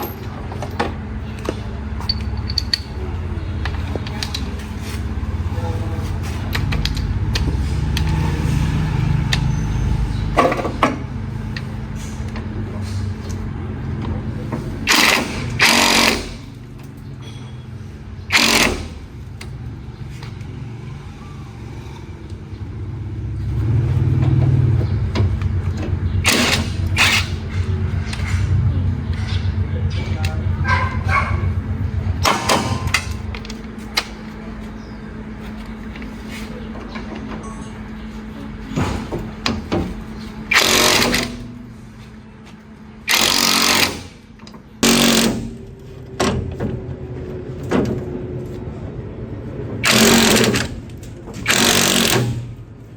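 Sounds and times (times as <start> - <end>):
motor rumbling: 0.0 - 52.9.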